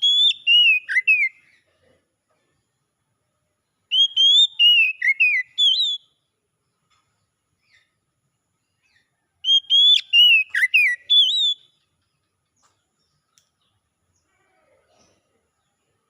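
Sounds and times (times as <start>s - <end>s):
bird singing whistled notes: 0.0s - 1.5s, 3.8s - 6.4s, 8.6s - 12.0s.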